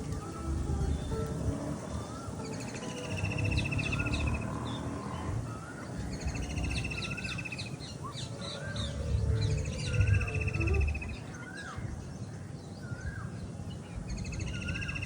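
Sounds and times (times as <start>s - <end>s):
rapid pulsed bird trill: 1.8s - 11.6s
steady low rumble: 5.3s - 12.3s.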